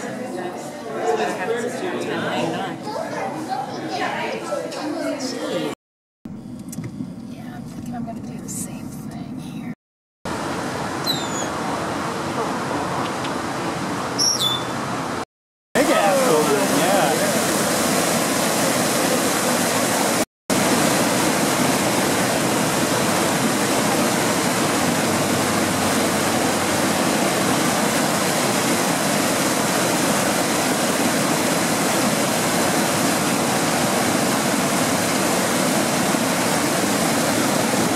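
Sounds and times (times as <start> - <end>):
running water rushing: 10.3 - 15.2, 15.8 - 37.9.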